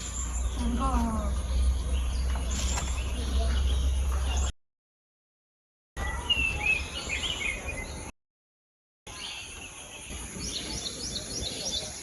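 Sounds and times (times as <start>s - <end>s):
birds gliding chirps: 0.0s - 4.5s, 6.0s - 8.1s, 9.1s - 12.0s.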